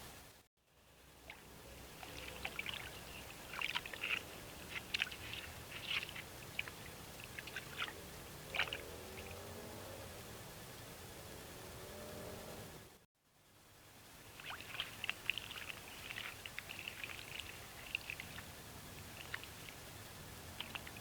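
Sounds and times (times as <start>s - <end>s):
trickling water: 1.0s - 9.8s, 14.0s - 21.0s
beaver splashing branches: 1.2s - 9.5s, 14.3s - 21.0s.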